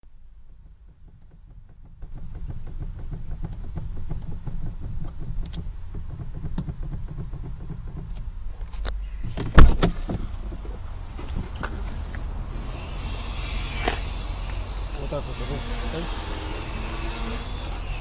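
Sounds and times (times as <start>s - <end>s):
car front end knocking and rattling: 0.1s - 18.0s
loud thump: 9.2s - 11.5s.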